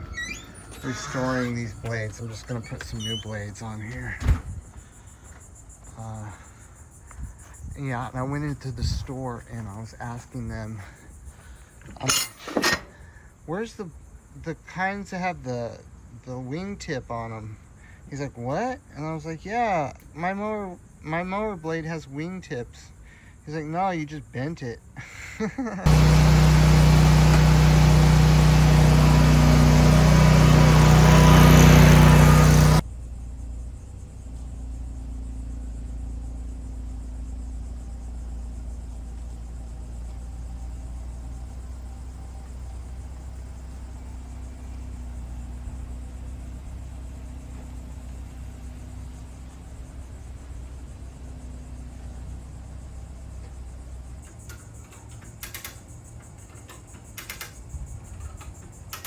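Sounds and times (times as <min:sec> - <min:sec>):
mower engine running loudly: 0:25.9 - 0:32.8.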